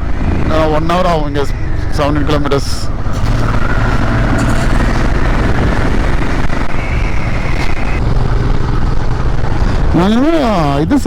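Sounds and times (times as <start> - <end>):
road and air noise: 0.0 - 11.0
motorcycle engine running: 2.8 - 11.0.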